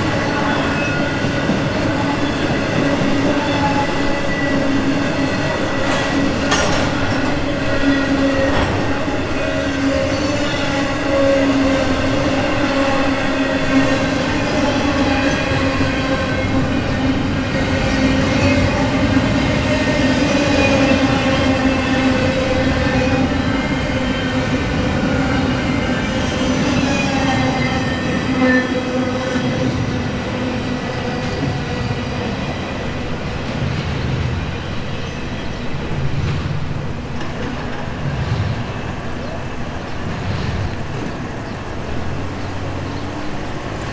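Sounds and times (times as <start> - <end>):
freight cars rumbling on rails: 0.0 - 43.9.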